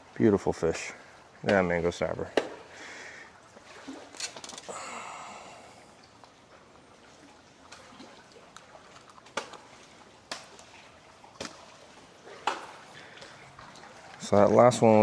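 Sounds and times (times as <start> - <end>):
water trickling and dripping: 0.0 - 15.0.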